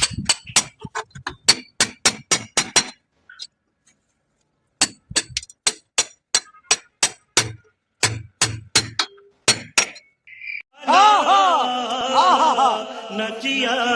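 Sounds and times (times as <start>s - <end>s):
hammer strikes with clinking ring: 4.8s - 10.2s.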